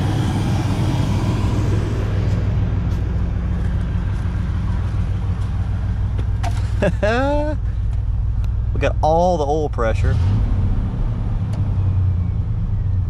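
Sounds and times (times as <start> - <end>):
pickup engine idling: 0.0 - 10.0.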